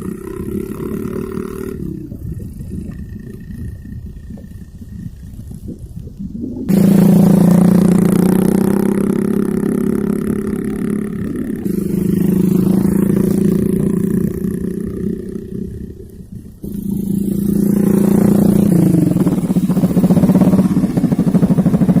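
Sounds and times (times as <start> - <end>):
mini bike engine running: 0.0 - 2.1, 6.7 - 22.0.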